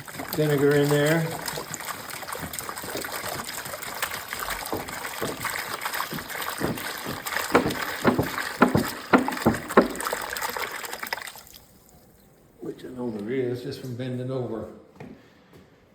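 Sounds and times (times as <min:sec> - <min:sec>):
water pouring and splashing: 0:00.0 - 0:12.3.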